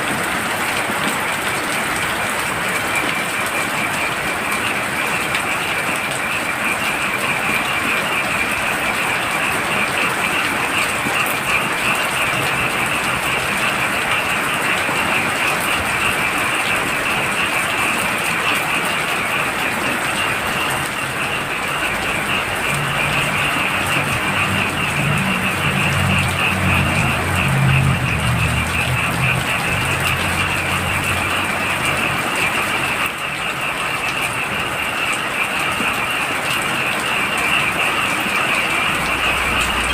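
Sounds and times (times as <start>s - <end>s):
heavy rain falling: 0.0s - 39.9s
frogs trilling: 0.1s - 39.9s
low droning sound: 38.5s - 39.9s.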